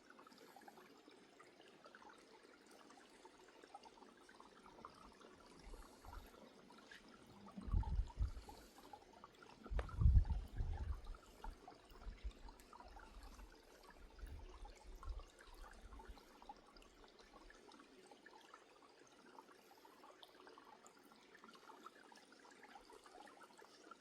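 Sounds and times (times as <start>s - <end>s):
running water trickling: 0.0s - 24.0s
low thuds: 9.7s - 10.4s.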